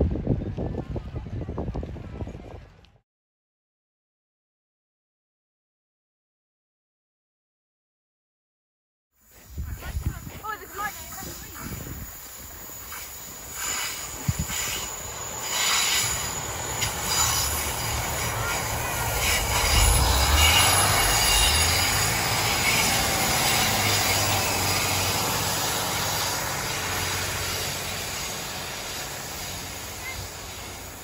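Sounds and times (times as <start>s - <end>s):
train engine and wheels passing: 9.2s - 31.0s.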